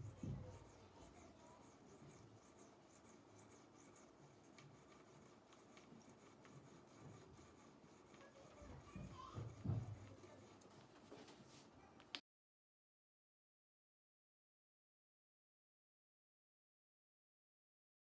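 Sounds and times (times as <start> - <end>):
faint light scratching: 0.0 - 11.9.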